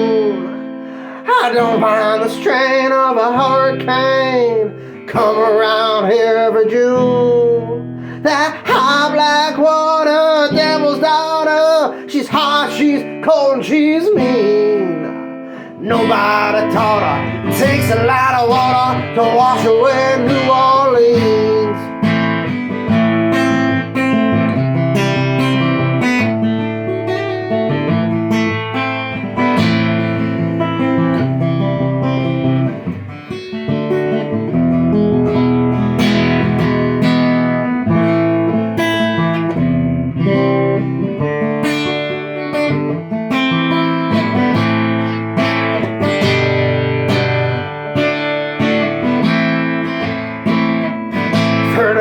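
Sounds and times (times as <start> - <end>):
guitar plucked and strummed chords: 0.0 - 52.0.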